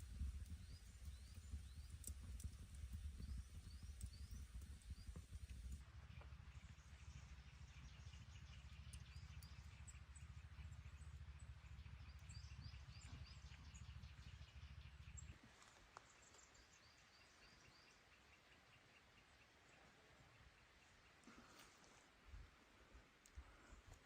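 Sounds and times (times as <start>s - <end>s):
wind rumble on microphone: 0.0s - 5.8s
small bird chirping: 0.0s - 19.1s.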